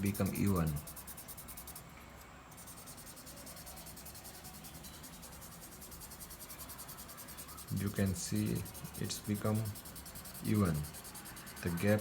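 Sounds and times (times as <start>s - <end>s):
paper stump rubbing on paper: 0.0s - 1.8s.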